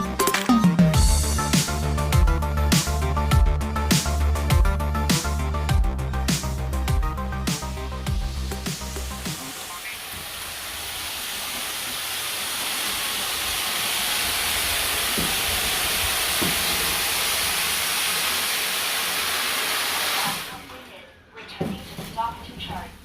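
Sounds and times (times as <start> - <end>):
robot vacuum suction hiss: 9.0 - 17.6.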